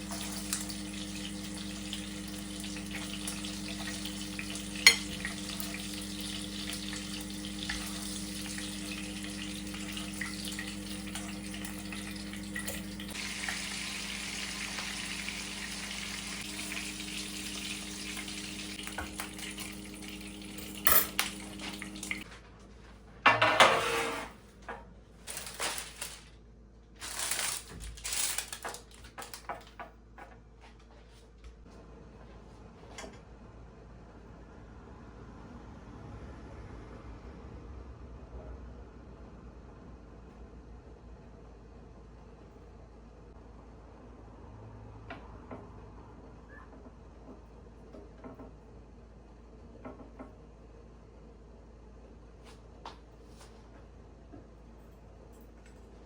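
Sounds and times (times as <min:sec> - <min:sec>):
food sizzling in a pan: 0:00.0 - 0:22.3
kitchen appliance hum: 0:00.0 - 0:22.4, 0:23.0 - 0:26.2
pots and dishes clattering: 0:03.0 - 0:07.1.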